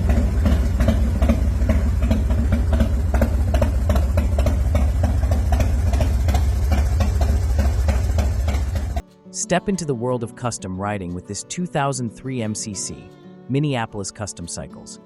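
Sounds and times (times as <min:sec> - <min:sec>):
motorcycle engine idling: 0:00.0 - 0:09.0.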